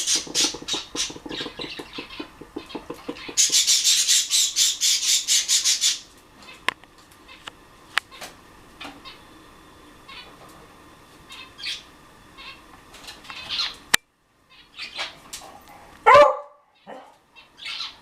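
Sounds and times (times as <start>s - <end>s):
bird chirps and squawks: 0.0s - 6.6s.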